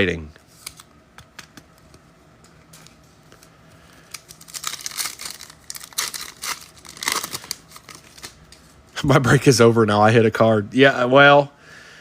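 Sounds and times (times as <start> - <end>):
foil wrapper tearing and crinkling: 4.0 - 8.4.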